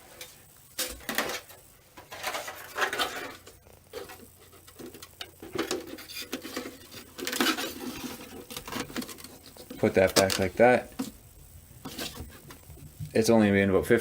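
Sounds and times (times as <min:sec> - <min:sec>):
plastic parts knocking and clicking: 0:04.0 - 0:11.1.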